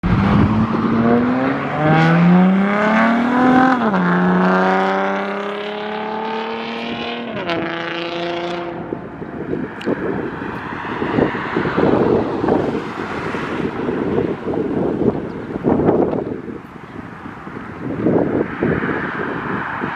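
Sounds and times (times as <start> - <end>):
wind noise: 0.0 - 19.9
car engine revving hard: 0.1 - 8.8.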